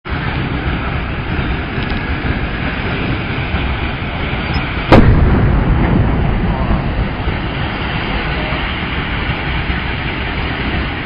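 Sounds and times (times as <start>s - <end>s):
steady rumbling noise: 0.0s - 11.0s
sudden loud bang: 4.9s - 8.3s.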